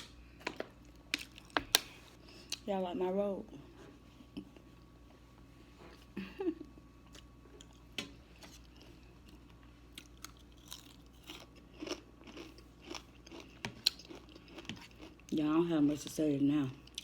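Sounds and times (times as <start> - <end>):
person chewing and crunching food: 0.0 - 2.7, 7.0 - 15.4, 16.8 - 17.0.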